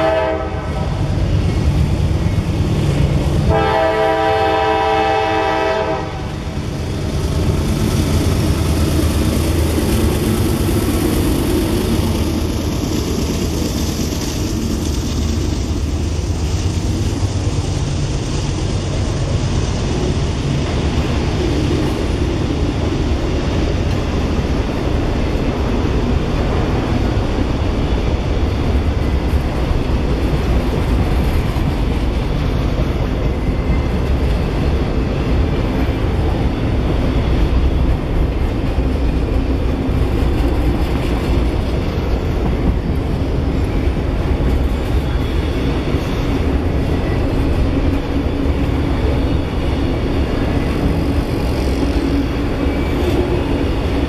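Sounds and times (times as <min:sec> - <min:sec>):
train horn blast: 0:00.0 - 0:01.0, 0:03.4 - 0:06.3
freight train rumbling past: 0:00.0 - 0:54.0
rail car wheel noise: 0:00.0 - 0:54.0.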